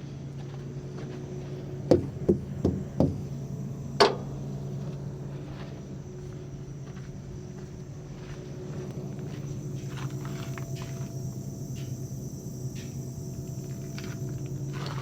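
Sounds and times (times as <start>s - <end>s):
truck engine idling: 1.4s - 6.6s
sharp metal knocks: 1.9s - 3.4s.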